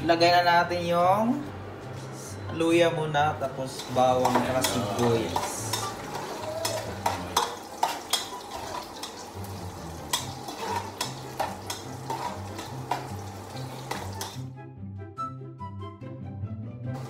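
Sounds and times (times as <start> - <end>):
ginger frying in hot oil: 3.7 - 14.5
spoon scraping a pot: 3.8 - 9.3, 10.0 - 14.4.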